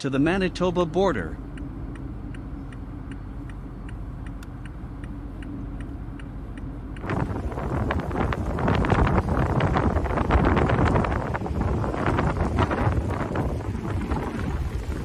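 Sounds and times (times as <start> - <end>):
turn signal relay ticking: 0.0 - 11.2
engine and road hum: 0.0 - 15.0
wind buffeting microphone: 6.8 - 15.0.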